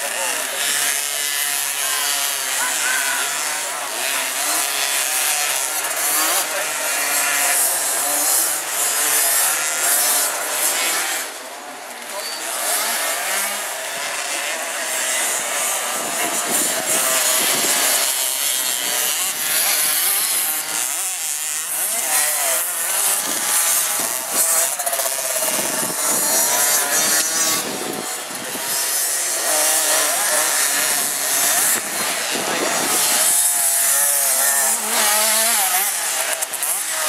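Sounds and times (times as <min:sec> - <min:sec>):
motocross bike engines buzzing: 0:00.0 - 0:37.0.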